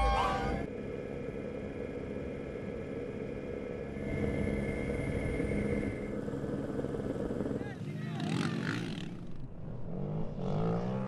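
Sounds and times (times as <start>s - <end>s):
thin whine: 0.0s - 7.6s
vehicle engine droning: 0.0s - 11.0s.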